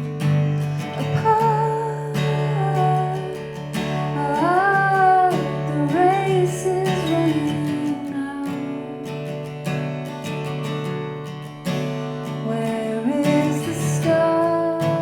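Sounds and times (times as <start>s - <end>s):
strummed acoustic guitar: 0.0s - 15.0s
woman singing: 0.8s - 9.9s, 12.3s - 15.0s.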